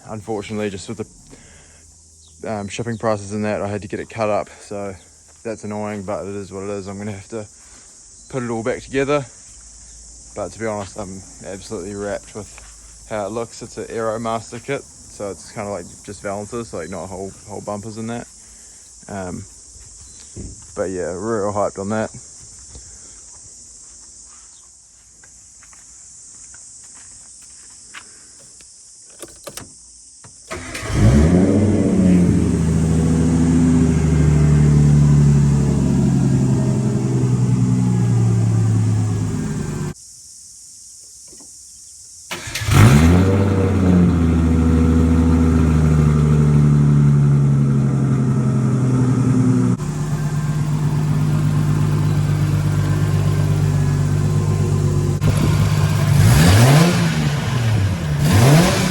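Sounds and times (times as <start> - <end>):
car engine starting and idling: 0.0 - 7.1, 30.5 - 40.0, 42.3 - 58.9.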